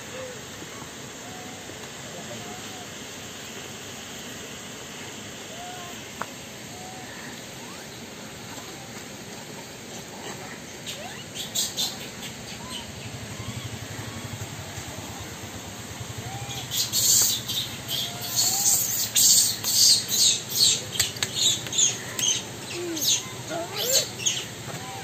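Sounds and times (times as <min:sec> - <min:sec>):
birds chirping: 0:10.3 - 0:25.0.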